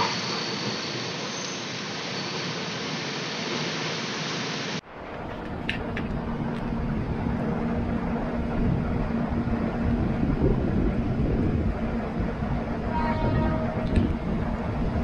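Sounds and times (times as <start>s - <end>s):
rain hiss: 0.0s - 4.9s
train wheels rumbling on track: 4.8s - 15.0s.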